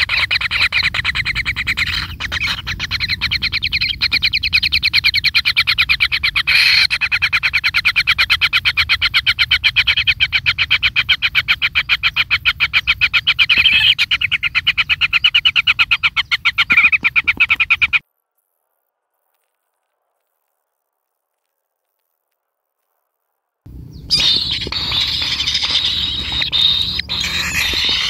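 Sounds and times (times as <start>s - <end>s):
nestlings calling in pulsed notes: 0.0s - 18.0s, 23.7s - 28.0s.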